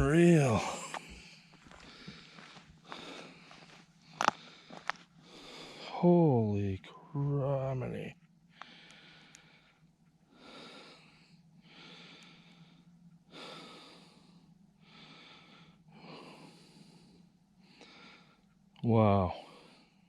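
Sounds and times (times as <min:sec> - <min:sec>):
man breathing heavily: 0:00.0 - 0:06.1, 0:08.5 - 0:18.5.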